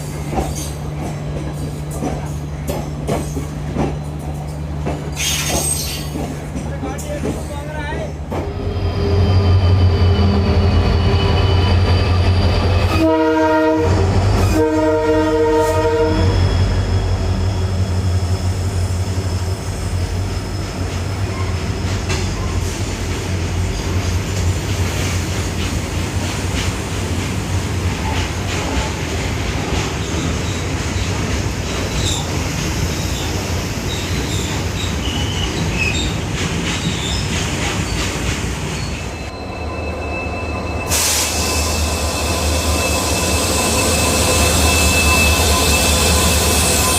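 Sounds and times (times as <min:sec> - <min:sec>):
train wheel clatter: 0:00.0 - 0:08.6, 0:20.8 - 0:39.2
diesel locomotive engine hum: 0:00.0 - 0:46.9
high wheel squeals: 0:08.5 - 0:13.2, 0:16.0 - 0:18.3, 0:38.8 - 0:46.9
train horn blasts: 0:12.9 - 0:16.6.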